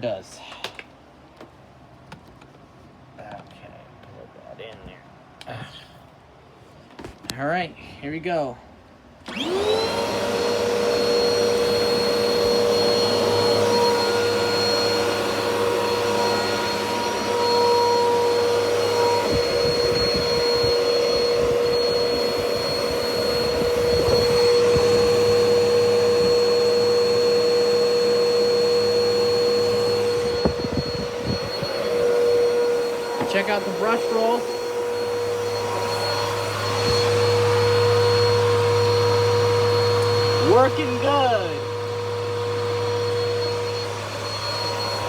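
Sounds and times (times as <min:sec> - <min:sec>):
vacuum cleaner motor whining: 0:09.2 - 0:45.0.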